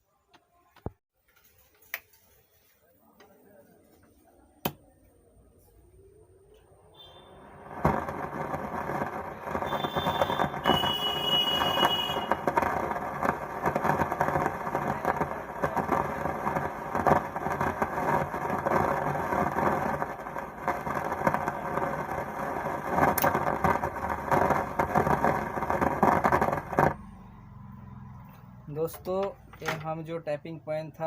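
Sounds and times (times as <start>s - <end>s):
amplifier speaker crackling: 6.5s - 27.1s.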